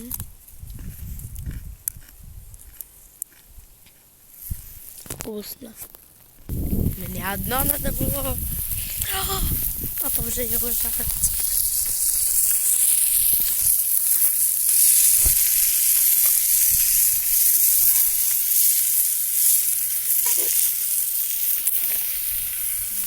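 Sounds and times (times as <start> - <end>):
food sizzling in frying pan: 6.5 - 23.0.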